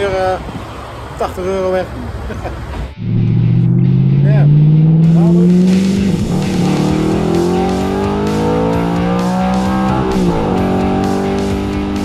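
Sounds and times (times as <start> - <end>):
car engine accelerating hard: 2.9 - 12.0.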